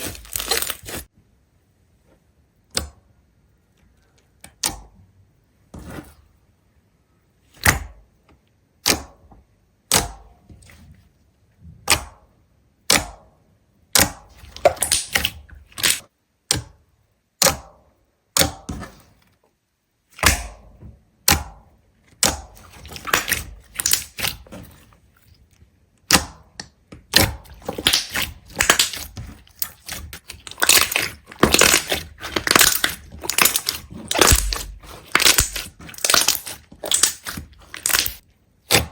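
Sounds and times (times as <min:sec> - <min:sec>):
sharp cracks and snaps: 0:14.0 - 0:16.1, 0:22.2 - 0:24.5, 0:25.5 - 0:38.9.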